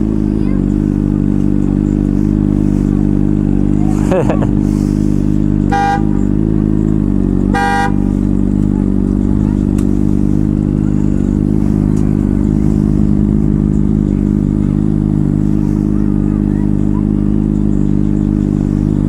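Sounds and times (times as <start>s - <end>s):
motorcycle engine idling: 0.0s - 19.0s
vehicle horn beep: 5.6s - 6.4s, 7.5s - 8.2s.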